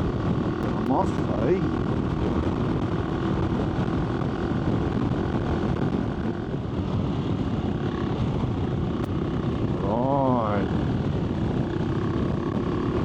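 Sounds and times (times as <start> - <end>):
motorcycle engine running: 0.0 - 13.0
wind on microphone: 0.0 - 13.0.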